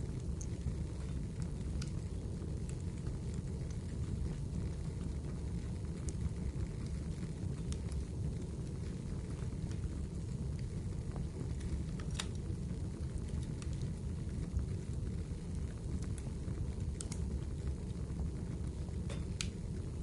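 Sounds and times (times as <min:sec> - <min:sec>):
fire crackling and popping: 0:00.0 - 0:20.0
fire rumbling: 0:00.0 - 0:20.0.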